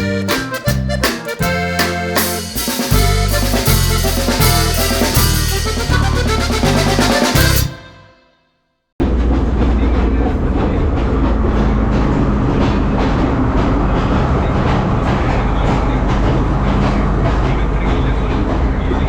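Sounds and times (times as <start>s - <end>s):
train running along track: 9.1s - 19.0s.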